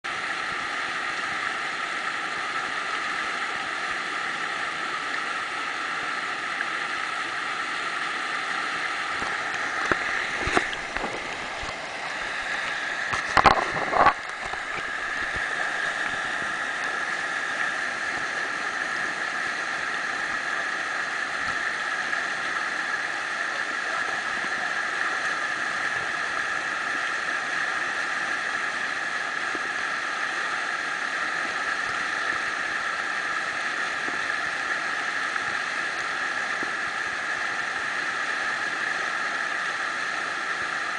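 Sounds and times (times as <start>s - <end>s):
whitewater rushing: 0.1s - 40.9s.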